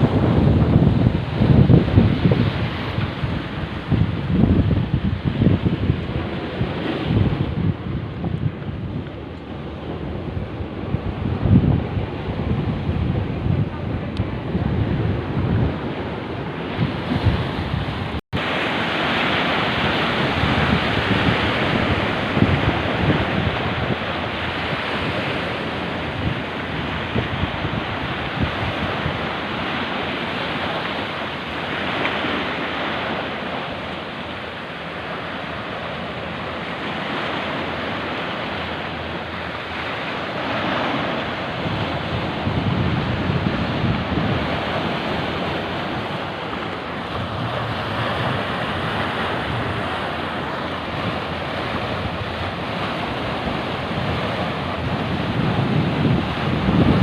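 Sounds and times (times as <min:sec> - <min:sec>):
sea waves breaking: 0:00.0 - 0:57.0
wind buffeting microphone: 0:00.0 - 0:57.0.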